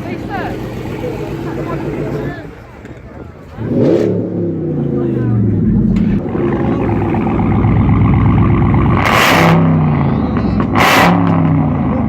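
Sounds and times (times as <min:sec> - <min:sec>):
car engine revving: 0:03.4 - 0:12.0.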